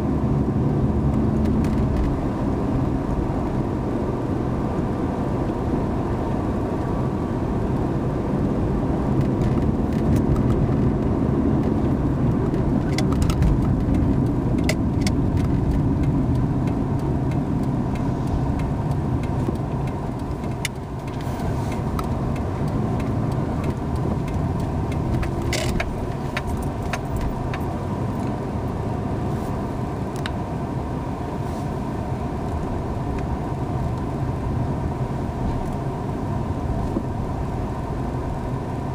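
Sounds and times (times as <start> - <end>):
road and engine rumble: 0.0 - 38.9.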